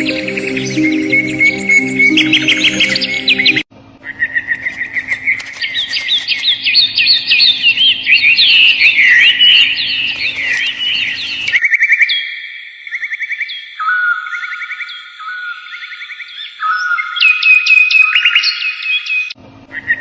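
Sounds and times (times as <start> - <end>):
birds chirping: 0.0 - 3.6, 4.4 - 11.6.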